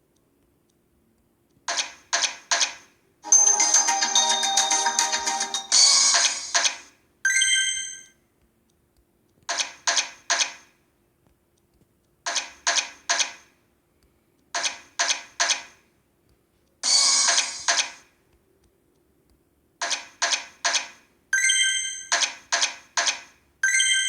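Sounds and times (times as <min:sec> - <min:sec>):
electronic chime: 0:03.2 - 0:06.5, 0:07.3 - 0:08.1.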